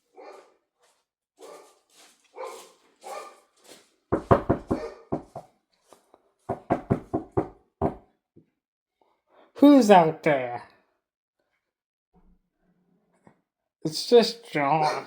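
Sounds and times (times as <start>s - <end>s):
dog barking: 0.0s - 0.6s, 1.4s - 3.8s, 4.6s - 5.4s, 14.8s - 15.0s.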